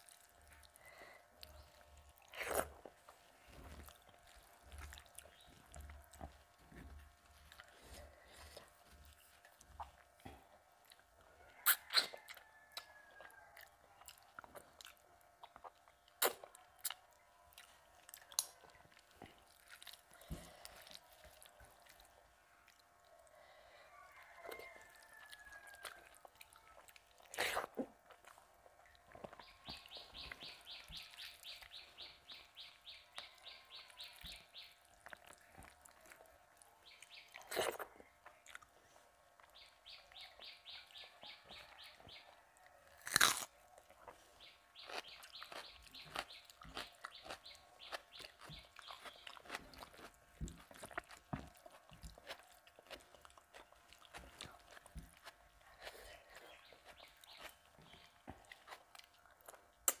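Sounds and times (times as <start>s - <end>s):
wet chewing and smacking: 0.0s - 60.0s
loud crunches: 43.0s - 43.5s.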